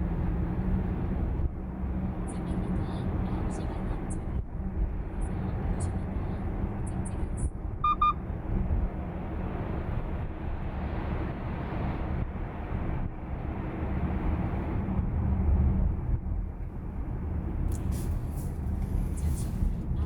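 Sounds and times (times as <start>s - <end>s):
road and tyre rumble: 0.0s - 20.0s
double electronic beep: 7.8s - 8.2s.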